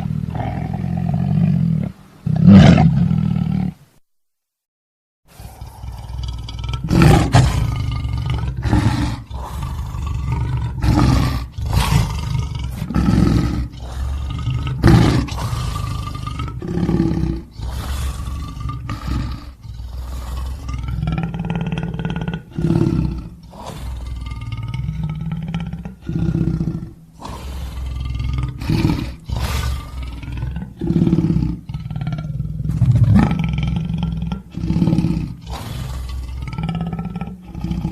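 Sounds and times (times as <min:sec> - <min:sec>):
lions roaring and grunting: 0:05.4 - 0:37.9.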